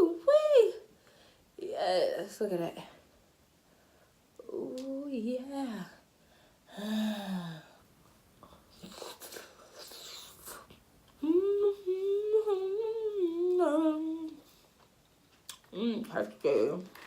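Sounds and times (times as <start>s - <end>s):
woman humming: 4.4s - 5.2s, 6.7s - 7.7s, 10.0s - 14.6s
soft chewing and mouth noises: 8.0s - 12.1s, 13.1s - 17.0s.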